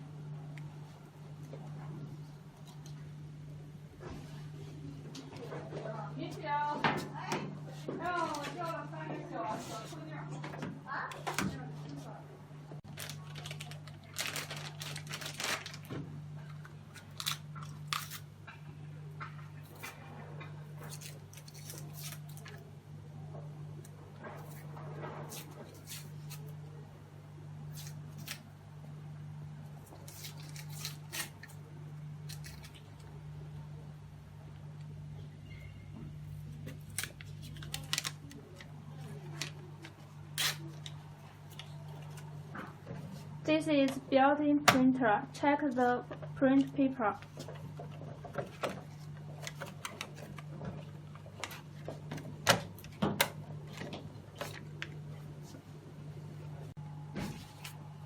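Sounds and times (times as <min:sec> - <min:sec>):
steady low hum: 0:00.0 - 0:58.0
rustling and crinkling handling: 0:04.0 - 0:12.2, 0:12.8 - 0:18.2, 0:36.4 - 0:43.4, 0:45.9 - 0:55.7, 0:57.2 - 0:58.0.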